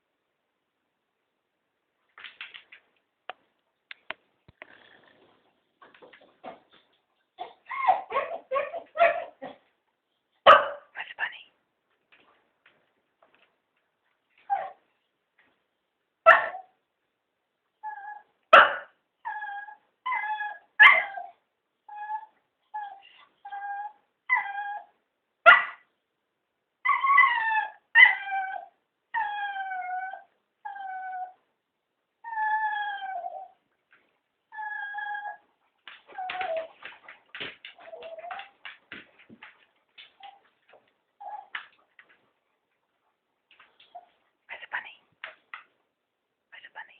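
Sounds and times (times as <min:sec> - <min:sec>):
dogs whining and yipping: 0:07.4 - 0:09.6, 0:14.4 - 0:14.8, 0:19.2 - 0:24.9, 0:26.8 - 0:31.4, 0:32.2 - 0:33.6, 0:34.5 - 0:38.8, 0:41.2 - 0:41.7
dogs barking: 0:10.5 - 0:10.9.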